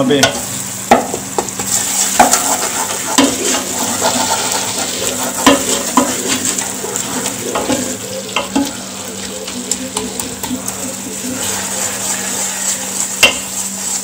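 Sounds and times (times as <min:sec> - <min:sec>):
masala sizzling in a pot: 0:00.0 - 0:14.0
wooden spoon scraping a metal pot: 0:01.6 - 0:14.0.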